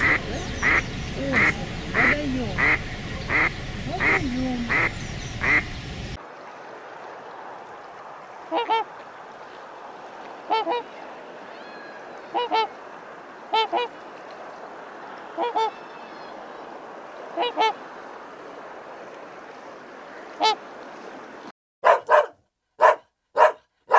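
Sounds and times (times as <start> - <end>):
goose honking: 0.0 - 5.8, 8.5 - 8.9, 10.5 - 10.9, 11.6 - 12.8, 13.5 - 14.0, 15.4 - 15.9, 17.4 - 17.8, 20.4 - 20.6.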